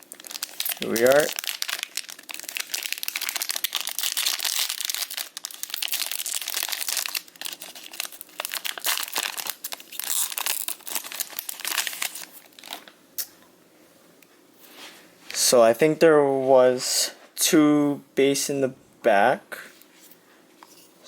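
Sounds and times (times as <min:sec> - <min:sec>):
card pack wrapper crinkling: 0:00.0 - 0:12.9.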